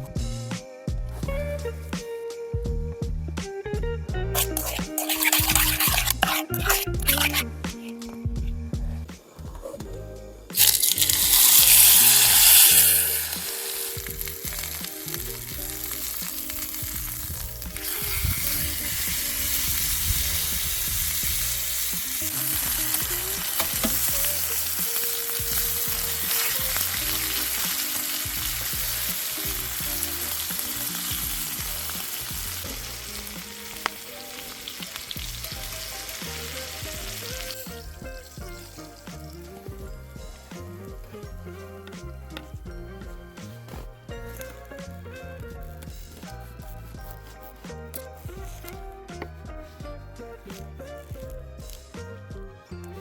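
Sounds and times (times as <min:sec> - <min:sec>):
food sizzling in a hot pan: 0:04.4 - 0:07.4, 0:10.6 - 0:39.3.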